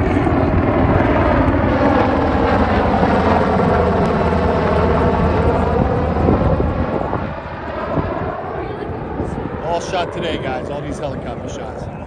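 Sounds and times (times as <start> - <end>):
helicopter rotor drone: 0.0 - 12.0.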